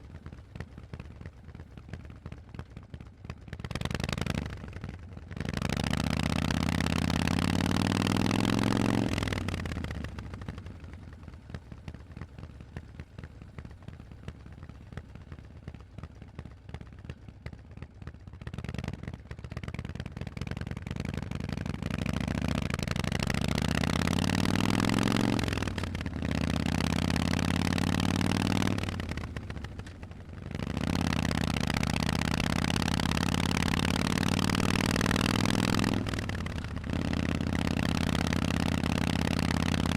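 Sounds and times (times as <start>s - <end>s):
motorcycle engine accelerating: 3.6s - 11.3s, 18.6s - 39.9s.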